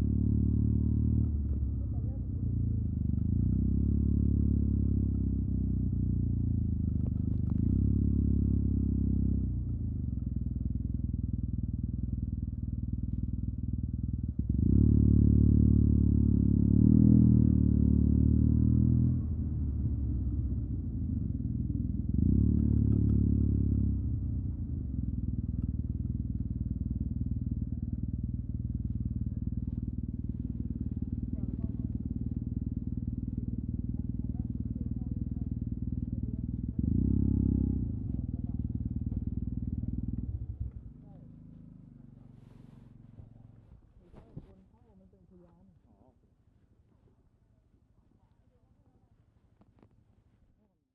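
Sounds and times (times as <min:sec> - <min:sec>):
scooter engine revving: 0:28.2 - 0:41.2.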